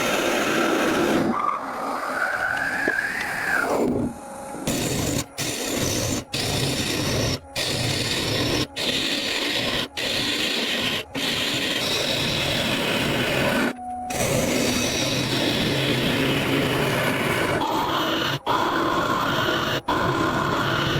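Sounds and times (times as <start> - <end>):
hand tool rasping against wood: 4.7 - 20.9.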